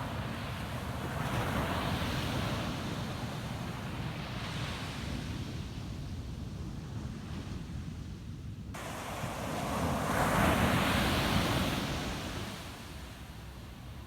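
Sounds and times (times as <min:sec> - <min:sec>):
wind rumble on microphone: 0:00.0 - 0:14.0
ocean wave breaking on beach: 0:08.8 - 0:13.1.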